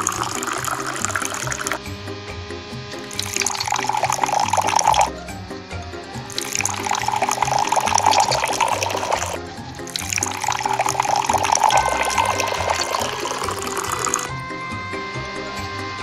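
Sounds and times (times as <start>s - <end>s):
juice trickling into glass: 0.0s - 1.8s, 3.1s - 5.1s, 6.3s - 14.3s
background music: 0.0s - 16.0s.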